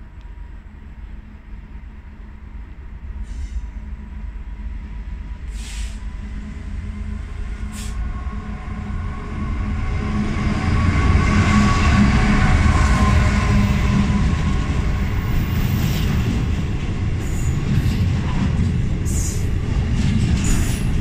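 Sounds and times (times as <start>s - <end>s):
diesel locomotive engine rumble: 0.0s - 21.0s
train wheel noise: 0.0s - 21.0s
brief hisses: 5.5s - 6.0s, 7.7s - 8.0s.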